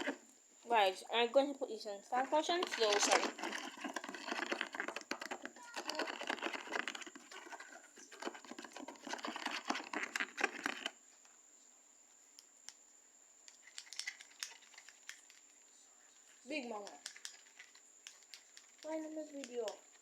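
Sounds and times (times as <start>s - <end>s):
slime stirred in a bowl: 2.5s - 11.0s
light clicks: 16.6s - 19.9s.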